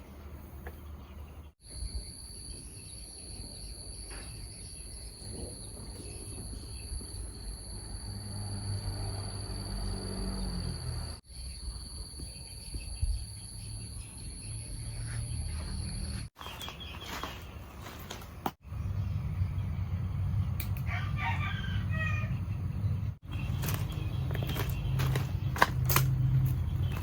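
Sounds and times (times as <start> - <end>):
rooster crowing: 20.8 - 22.5.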